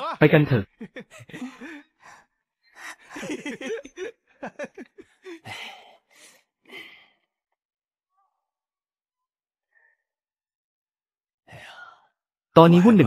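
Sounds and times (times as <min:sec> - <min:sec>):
person speaking: 0:00.0 - 0:01.8, 0:02.8 - 0:05.6.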